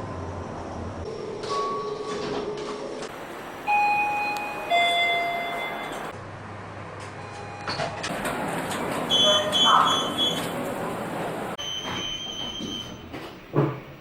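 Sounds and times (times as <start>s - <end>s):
machinery hum: 0.0s - 12.0s
elevator chime two notes: 3.7s - 6.1s.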